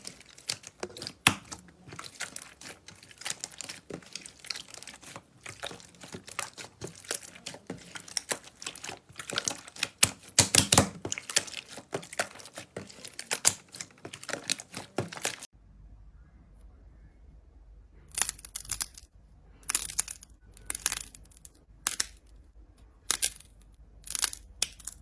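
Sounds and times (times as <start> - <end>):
slime crackling when squeezed: 0.0 - 15.5
faint low hum: 15.6 - 24.9.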